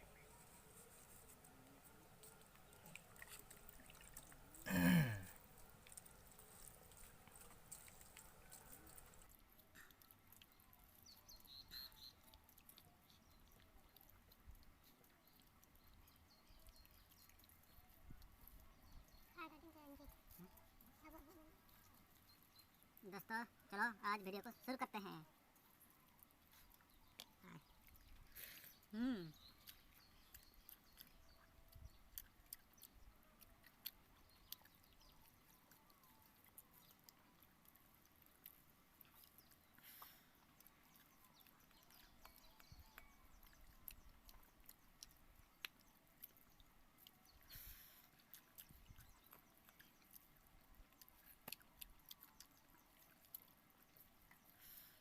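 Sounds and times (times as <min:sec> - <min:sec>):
person chewing: 0:00.0 - 0:19.2, 0:25.7 - 0:55.0
slurp: 0:00.2 - 0:10.0.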